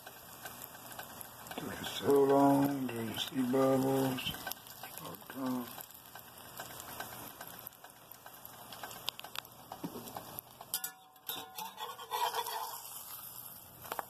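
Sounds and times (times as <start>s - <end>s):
dough sizzling in oil: 0.0s - 14.0s
spatula scraping a pan: 10.1s - 14.0s.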